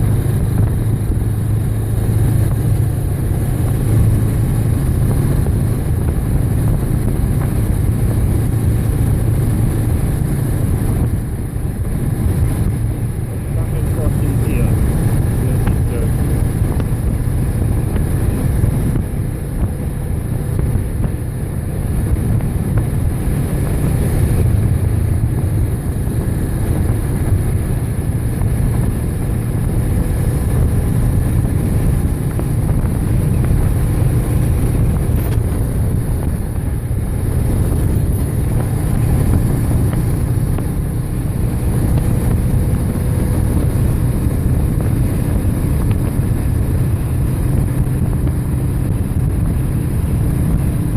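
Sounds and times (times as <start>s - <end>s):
motorcycle engine drone: 0.0s - 50.9s
wind noise on microphone: 0.0s - 50.9s.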